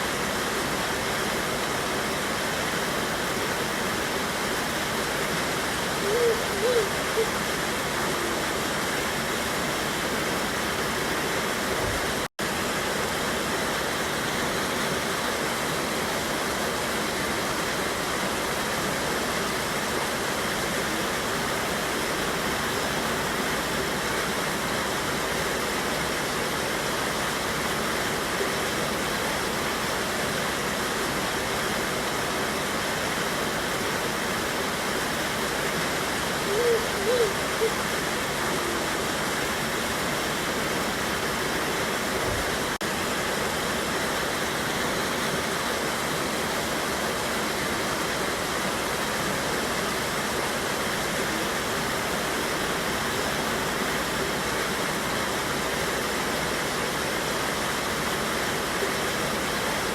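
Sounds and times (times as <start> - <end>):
river rushing over waterfall: 0.0 - 59.9.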